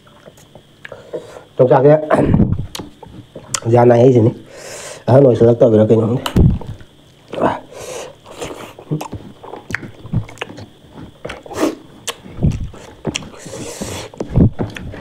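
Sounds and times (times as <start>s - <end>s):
person chewing: 6.6s - 15.0s.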